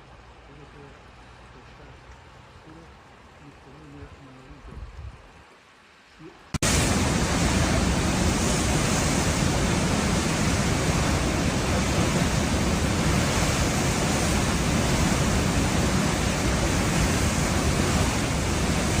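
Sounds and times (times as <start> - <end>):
floodwater rushing: 5.4 - 19.0.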